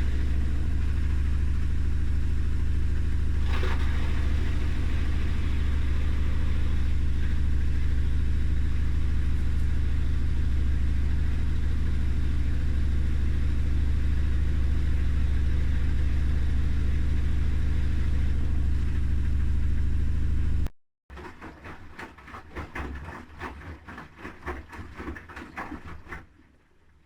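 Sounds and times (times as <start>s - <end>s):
washing machine drum spinning: 0.0s - 26.4s
laundry tumbling in drum: 3.4s - 6.9s, 21.1s - 26.5s.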